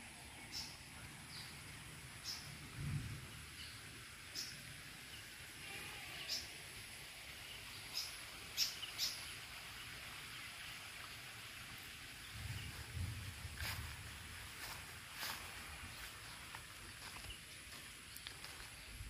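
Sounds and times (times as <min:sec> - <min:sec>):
outdoor hiss: 0:00.0 - 0:19.0.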